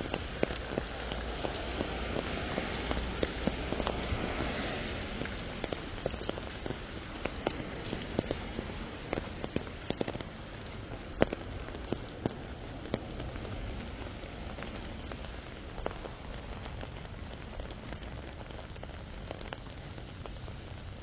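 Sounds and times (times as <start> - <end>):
raindrops tapping on umbrella: 0.0 - 21.0
steady rainfall hissing: 0.0 - 21.0.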